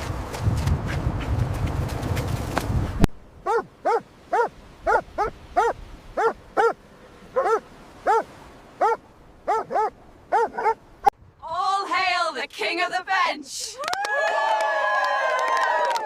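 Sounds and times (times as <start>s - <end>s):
dog barking: 3.4s - 10.8s.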